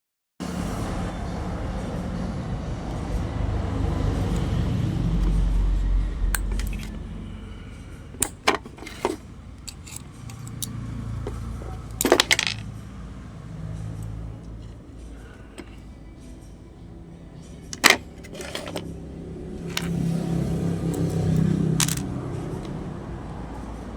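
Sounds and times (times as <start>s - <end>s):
metal parts clinking: 6.3s - 7.0s, 8.1s - 12.7s, 17.6s - 18.9s, 19.6s - 19.9s, 20.9s - 22.1s.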